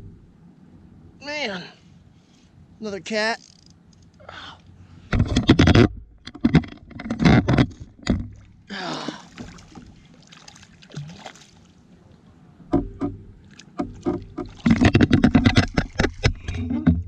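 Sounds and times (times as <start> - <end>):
fish knocking against plastic hull: 5.1 - 8.5, 12.7 - 13.2, 13.8 - 17.0.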